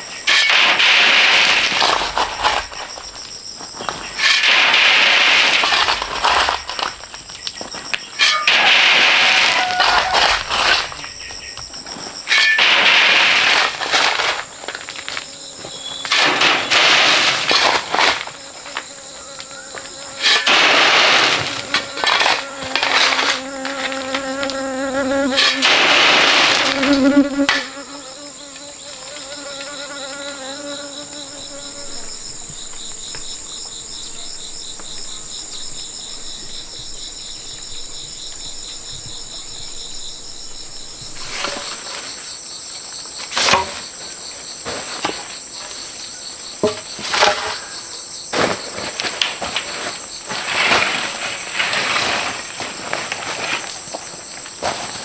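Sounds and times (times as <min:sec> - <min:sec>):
insects chirring: 0:00.0 - 0:55.0
sharp knocks: 0:31.4 - 0:41.9.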